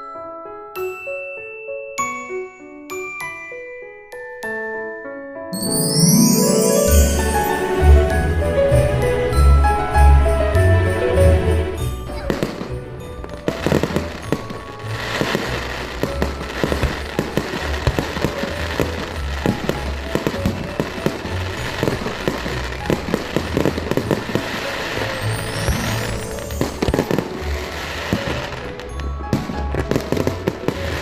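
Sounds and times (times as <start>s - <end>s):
music playing: 5.5s - 31.0s
fireworks bangs and crackles: 6.5s - 31.0s.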